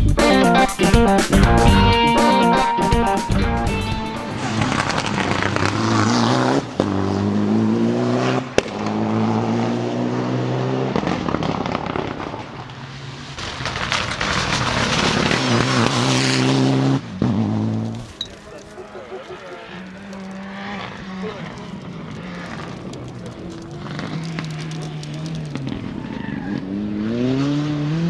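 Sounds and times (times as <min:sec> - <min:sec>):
exhaust pops: 0:02.9 - 0:07.1, 0:10.9 - 0:26.8
rally car engines passing: 0:03.7 - 0:28.0.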